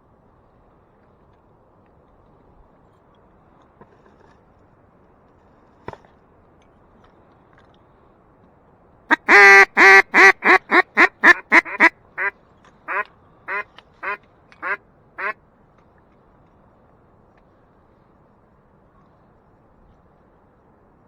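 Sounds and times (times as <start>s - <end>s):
duck quacking: 9.1s - 12.3s, 12.9s - 15.4s.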